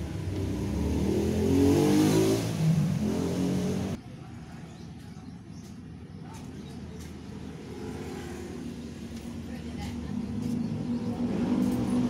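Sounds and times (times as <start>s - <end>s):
engine revving: 0.0s - 4.0s, 10.7s - 12.0s.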